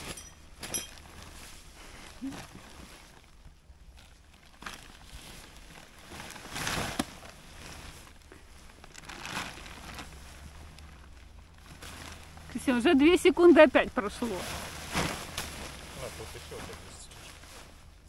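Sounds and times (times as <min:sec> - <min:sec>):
tent fabric rustling: 0:00.0 - 0:18.0.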